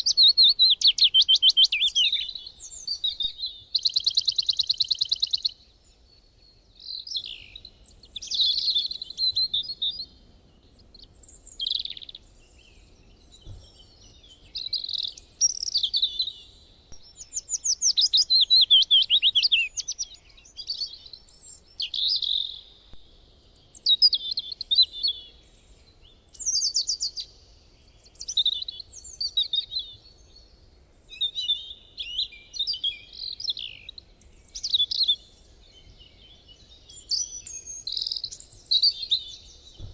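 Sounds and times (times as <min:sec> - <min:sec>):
songbird chirps and trills: 0:00.0 - 0:39.9.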